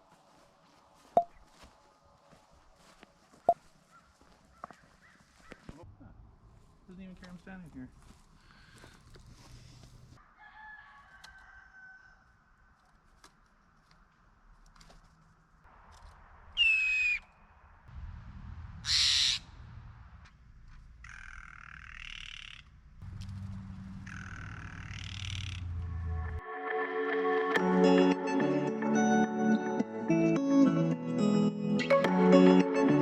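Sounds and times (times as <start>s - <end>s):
jays calling harshly: 18.8s - 19.4s, 23.8s - 25.7s.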